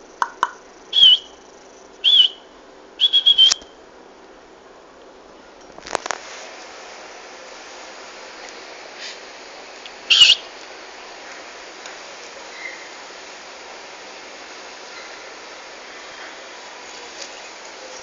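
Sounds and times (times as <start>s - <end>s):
steady background hiss: 0.0s - 18.0s
high-pitched bird chirp: 0.9s - 1.4s, 2.0s - 2.4s, 3.0s - 3.6s, 10.1s - 10.4s.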